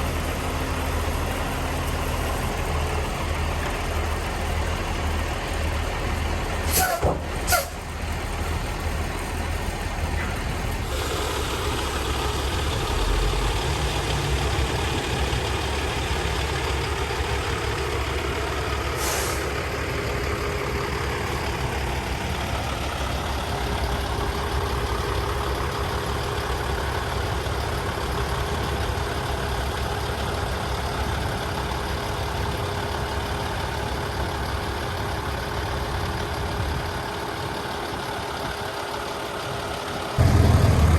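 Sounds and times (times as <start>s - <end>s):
diesel truck engine running: 0.0s - 40.9s
air hiss: 19.0s - 19.5s.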